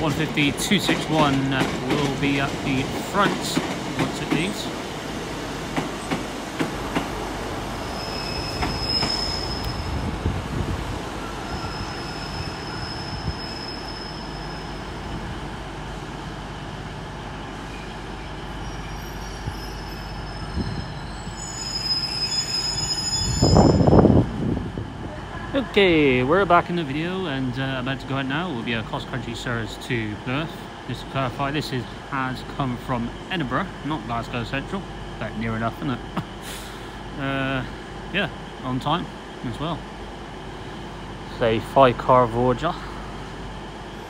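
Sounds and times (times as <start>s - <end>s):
wheel flanges squealing: 7.9s - 10.0s, 18.4s - 23.9s.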